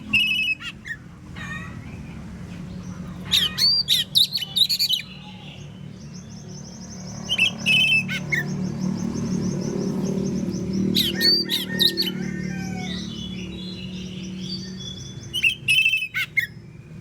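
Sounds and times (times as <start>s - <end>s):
loud whistled bird phrases: 0.0s - 1.0s, 3.3s - 5.8s, 10.9s - 16.6s.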